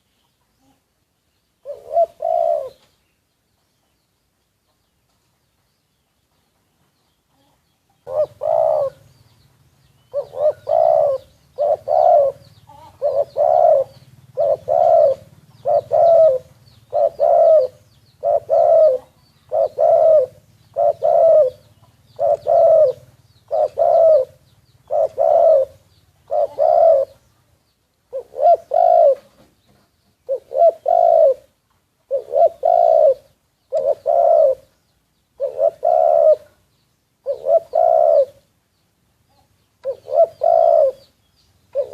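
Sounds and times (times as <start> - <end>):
dove cooing: 1.6 - 3.0, 7.3 - 9.3, 10.0 - 27.3, 28.1 - 29.5, 30.2 - 34.8, 35.4 - 38.5, 39.3 - 41.1.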